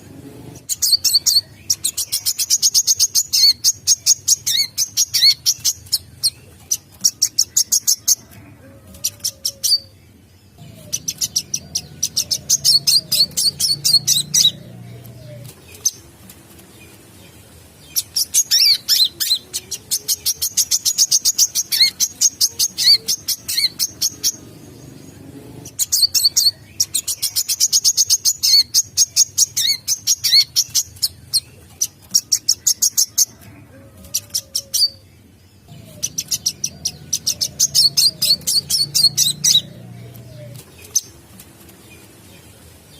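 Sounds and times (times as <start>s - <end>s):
bird chittering song: 0.6s - 8.4s, 9.0s - 16.0s, 16.8s - 33.4s, 34.2s - 41.2s.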